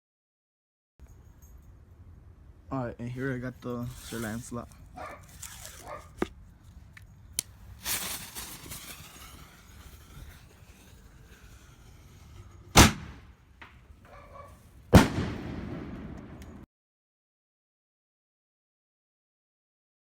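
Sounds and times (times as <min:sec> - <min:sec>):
hissing fuse: 0:07.4 - 0:13.2
firework bangs: 0:07.5 - 0:16.6.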